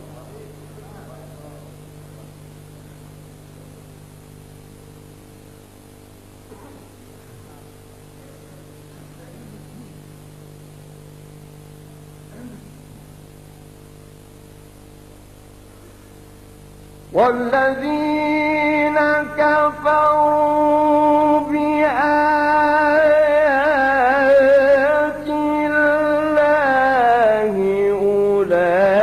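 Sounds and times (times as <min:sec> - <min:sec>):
faint murmurs of listeners: 0:00.0 - 0:04.4, 0:06.4 - 0:13.7, 0:15.1 - 0:16.4
electrical hum from loudspeakers: 0:00.0 - 0:29.0.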